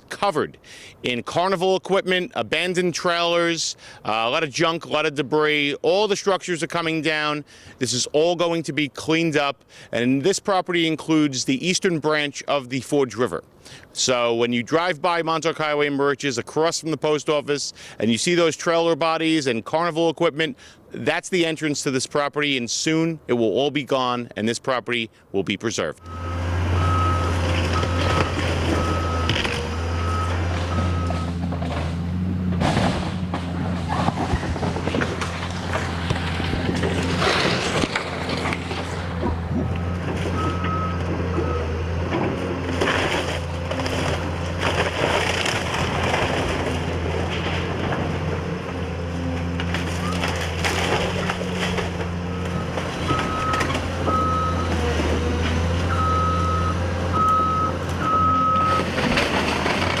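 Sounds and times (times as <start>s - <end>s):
reversing alarm beeping: 26.0s - 31.4s, 40.3s - 41.8s, 52.3s - 55.0s, 55.9s - 58.9s
debris crunching and crashing: 26.0s - 60.0s
diesel demolition equipment running: 26.0s - 60.0s.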